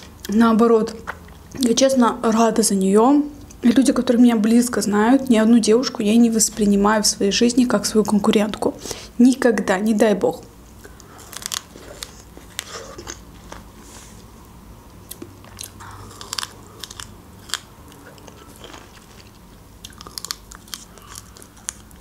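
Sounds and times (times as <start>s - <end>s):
chewing pomegranate seeds: 10.8s - 13.8s, 14.4s - 22.0s.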